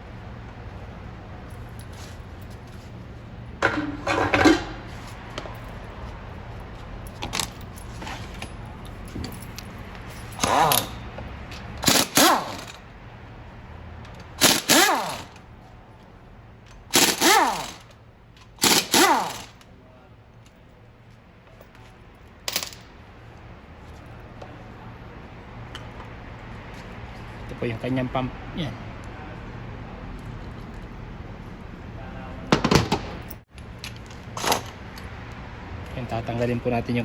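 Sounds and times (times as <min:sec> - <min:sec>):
impact wrench bursts: 0:10.3 - 0:11.0, 0:11.8 - 0:12.8, 0:14.2 - 0:15.4, 0:16.9 - 0:19.6.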